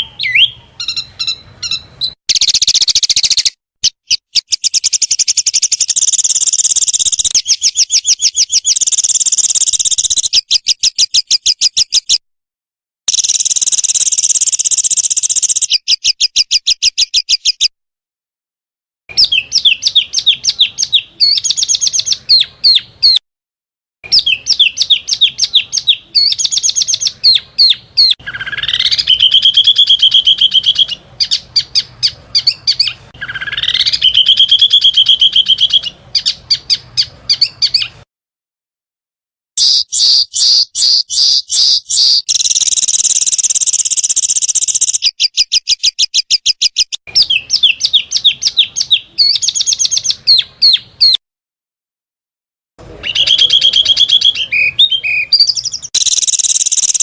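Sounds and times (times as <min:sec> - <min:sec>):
songbird trills sweeping up: 0:00.2 - 0:10.4, 0:39.6 - 0:45.2, 0:55.3 - 0:57.0
songbird sharp repeated high notes: 0:39.6 - 0:45.1.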